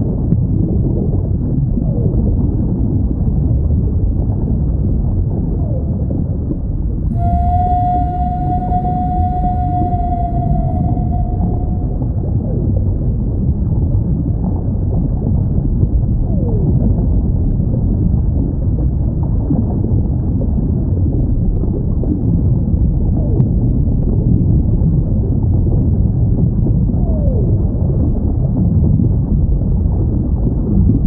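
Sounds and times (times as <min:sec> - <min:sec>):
low underwater rumble: 0:04.9 - 0:16.0
whale moans: 0:07.1 - 0:12.2.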